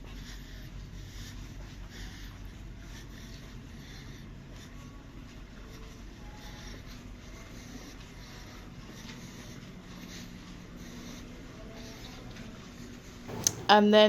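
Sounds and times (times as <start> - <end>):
faint scuffs: 13.3 - 13.8
soft clicks: 13.3 - 13.8
low interior hum: 13.3 - 14.0.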